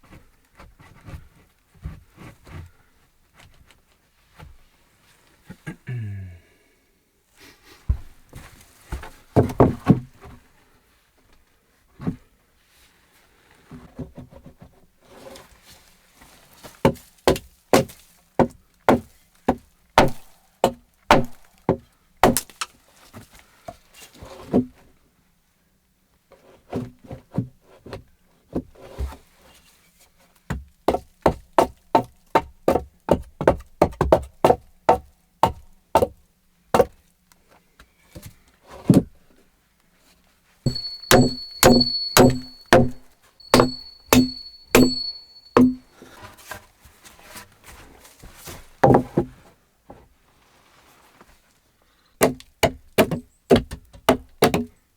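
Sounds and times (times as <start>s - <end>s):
hammer blows on wood: 20.0s - 20.3s, 40.7s - 45.9s.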